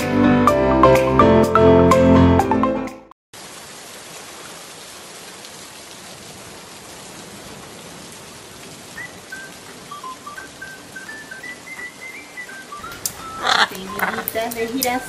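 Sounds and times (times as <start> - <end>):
steady rain pouring: 3.3 - 15.0.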